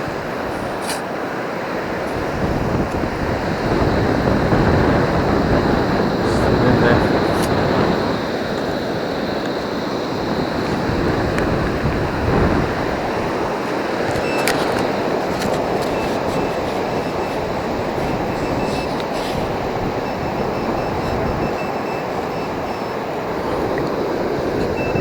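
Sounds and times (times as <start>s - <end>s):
surf rushing: 0.0s - 25.0s
metal detector beeps: 12.6s - 25.0s.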